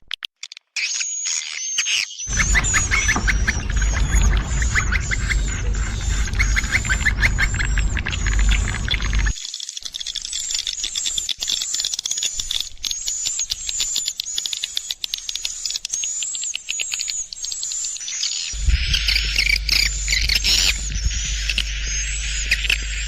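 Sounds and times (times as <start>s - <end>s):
low steady hum: 2.3s - 9.3s, 18.6s - 23.0s
swiftlets twittering: 2.3s - 9.4s, 18.6s - 23.0s.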